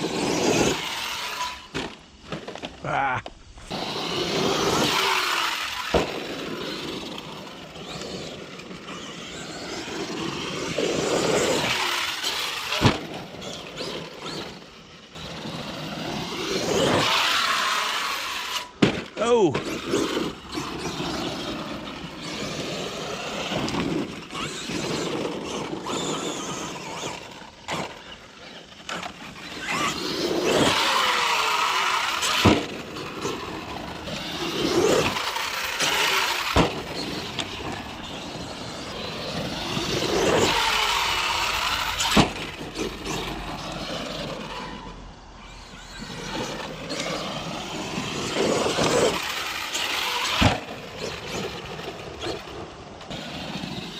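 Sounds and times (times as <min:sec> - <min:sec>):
electric motor whine: 0:19.8 - 0:53.9.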